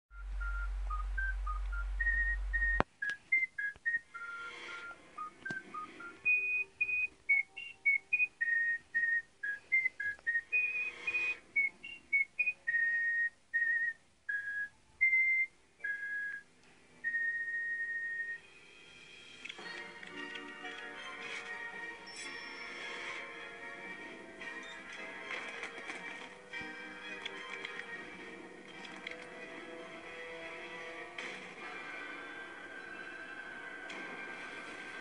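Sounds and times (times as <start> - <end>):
low hum: 0.1 - 7.0
whistled melody: 0.1 - 28.0, 31.8 - 35.0.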